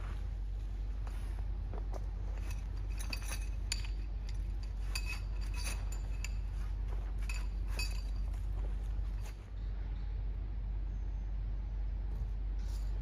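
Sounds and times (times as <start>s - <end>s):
steady low rumble: 0.0s - 13.0s
small objects clinking: 2.2s - 9.4s.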